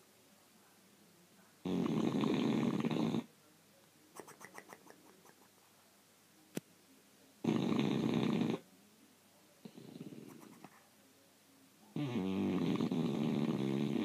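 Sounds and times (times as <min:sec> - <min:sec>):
dog snoring: 0:01.6 - 0:03.3, 0:07.4 - 0:08.6, 0:09.6 - 0:10.6, 0:12.0 - 0:14.0.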